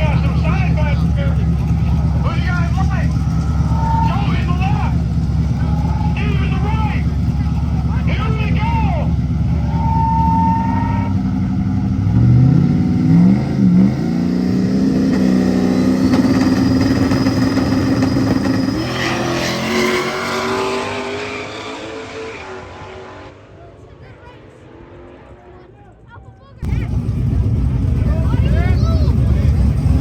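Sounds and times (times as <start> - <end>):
drag car engine revving: 0.0 - 26.0, 26.6 - 30.0.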